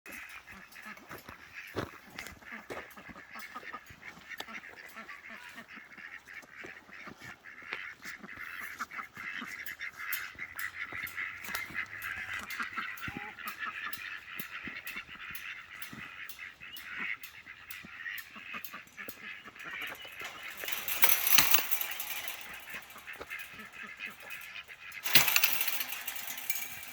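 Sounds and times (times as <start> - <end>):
ducks quacking and honking: 0.1 - 20.5.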